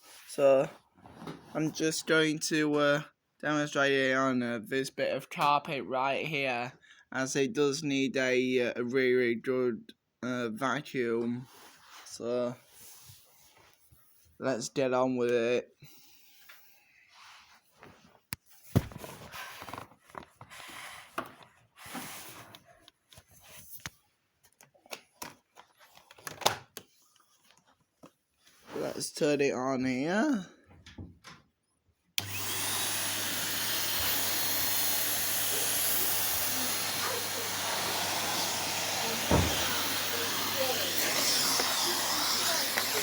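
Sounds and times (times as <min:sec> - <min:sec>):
vacuum cleaner running: 0:32.2 - 0:43.0
thump: 0:39.3 - 0:39.7.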